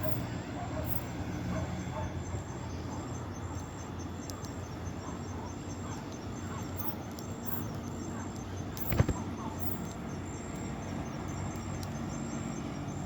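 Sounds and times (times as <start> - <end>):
insects chirping in high trill: 0.0 - 13.0
faint sharp clicks: 3.6 - 4.6, 11.5 - 12.0.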